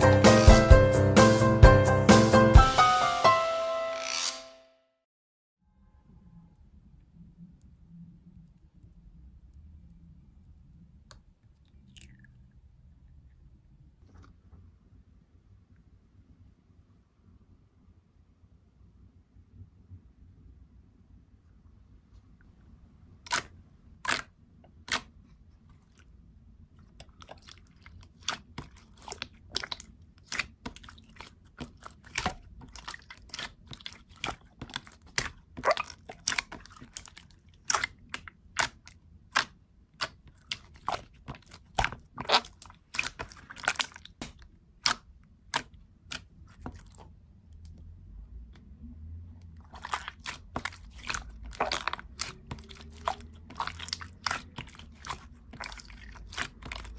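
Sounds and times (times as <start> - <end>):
sharp crunching: 49.6 - 56.9.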